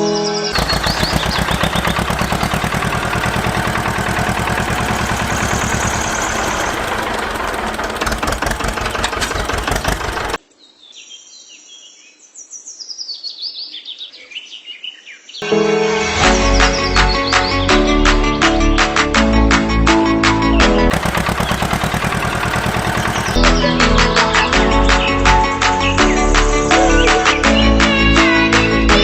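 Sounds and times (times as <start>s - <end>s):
birds chirping: 0.0s - 10.4s, 20.9s - 23.7s
small engine running: 0.6s - 10.4s, 20.9s - 23.4s.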